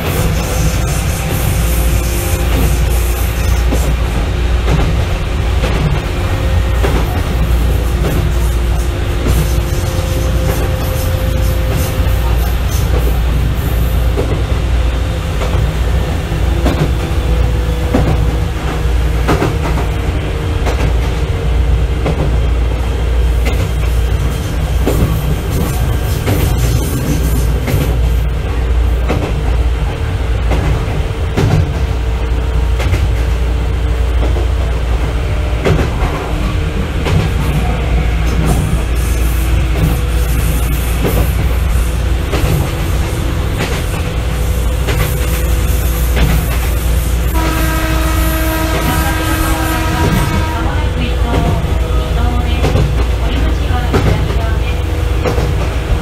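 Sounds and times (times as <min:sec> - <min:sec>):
wheels clacking over rail joints: 0:00.0 - 0:22.6, 0:34.2 - 0:56.0
train running noise with hum: 0:00.0 - 0:56.0.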